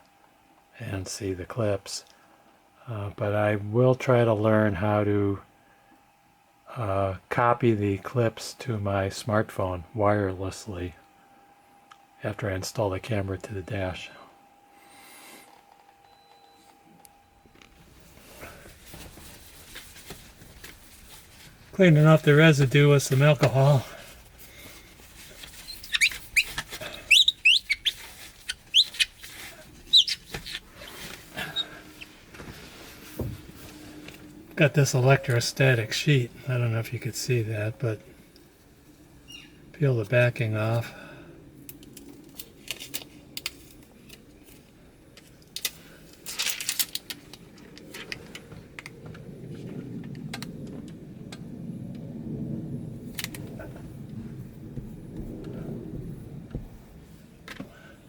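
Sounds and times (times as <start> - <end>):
plastic sheet peeling crackles: 17.8 - 34.3, 41.6 - 48.9
cloth squeaking on glass: 25.3 - 32.3
low rumble: 47.2 - 57.6.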